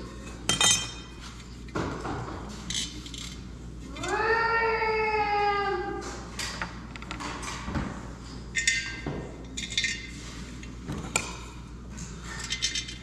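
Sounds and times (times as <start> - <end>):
metal parts and tools clinking: 8.6 - 10.2, 12.3 - 13.0.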